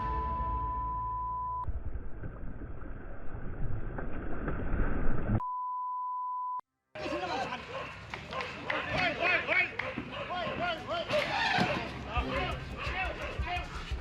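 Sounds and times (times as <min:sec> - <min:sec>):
high censor beep: 0:00.0 - 0:01.7, 0:05.4 - 0:06.6
water noise: 0:01.7 - 0:05.4.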